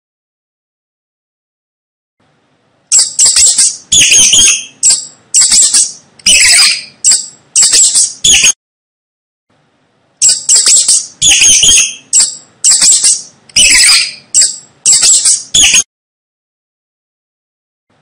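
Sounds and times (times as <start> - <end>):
mouse squeaking: 2.9 - 8.6, 10.2 - 15.8.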